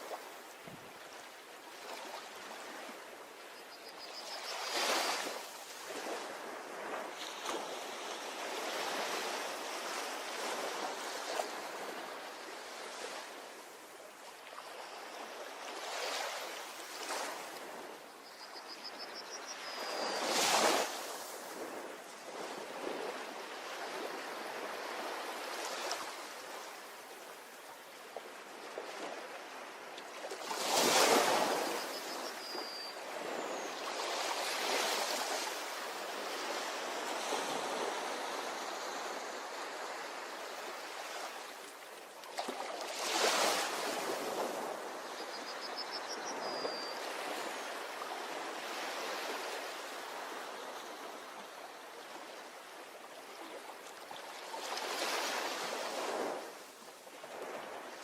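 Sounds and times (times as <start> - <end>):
faint high chirp: 3.5 - 5.3, 18.1 - 21.0, 31.2 - 34.2, 45.0 - 48.3.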